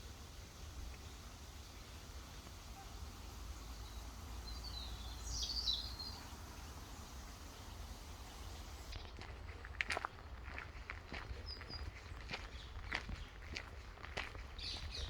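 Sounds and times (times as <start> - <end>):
faint steady hiss: 0.0 - 9.0
bird chirping: 0.0 - 9.1.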